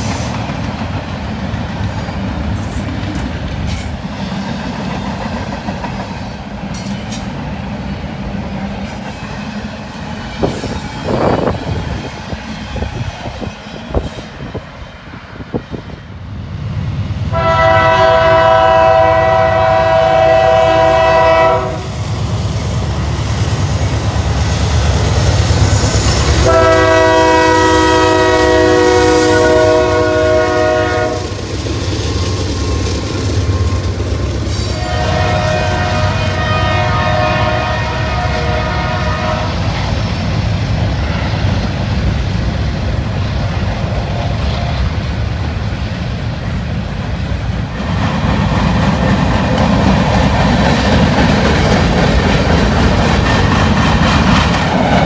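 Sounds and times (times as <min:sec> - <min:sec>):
train rumbling with clicking wheels: 0:00.0 - 0:55.0
train air horn chord: 0:17.3 - 0:21.9, 0:26.4 - 0:31.4, 0:34.6 - 0:39.6.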